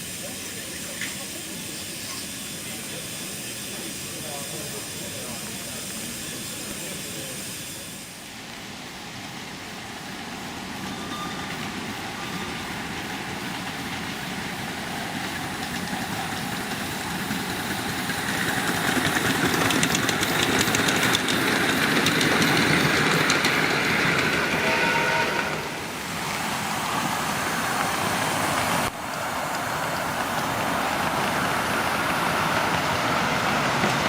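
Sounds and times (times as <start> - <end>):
miniature train running on track: 0.0 - 34.0.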